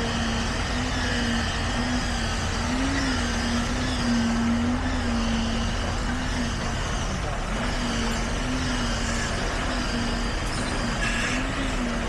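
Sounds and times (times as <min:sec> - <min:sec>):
heavy machinery engine running: 0:00.0 - 0:12.0.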